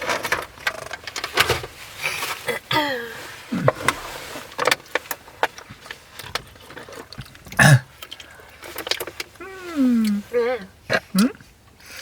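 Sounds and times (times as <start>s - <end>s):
snack crunching: 6.7s - 12.0s.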